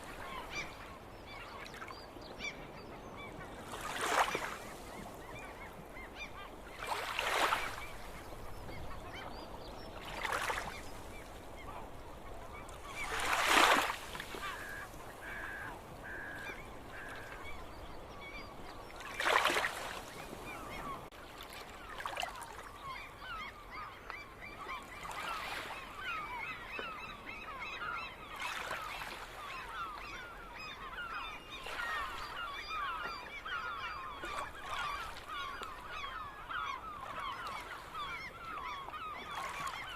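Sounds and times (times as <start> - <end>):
flock of gulls chattering: 0.0 - 21.1, 21.9 - 39.9
loud gull calls: 10.1 - 21.1, 22.2 - 39.9.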